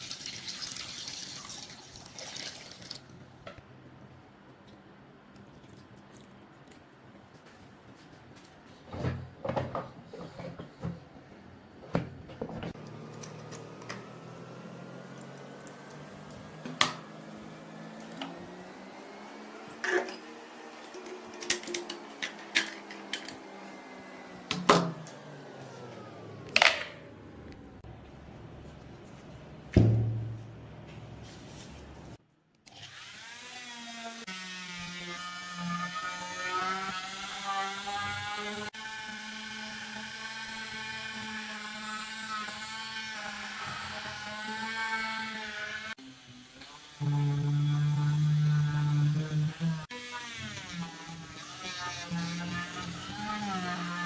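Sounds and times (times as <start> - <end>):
electric power tool whining: 12.8 - 26.6, 32.7 - 54.0.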